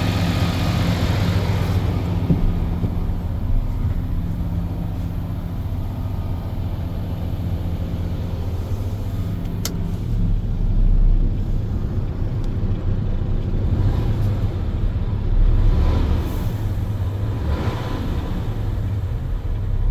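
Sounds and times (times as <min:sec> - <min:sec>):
truck diesel engine rumbling: 0:00.0 - 0:19.9.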